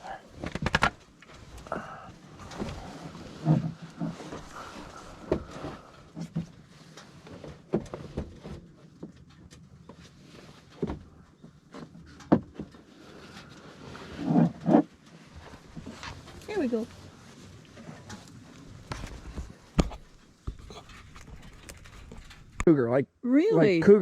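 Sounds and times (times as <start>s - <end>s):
low animal sounds: 0.0s - 0.5s, 1.5s - 6.3s.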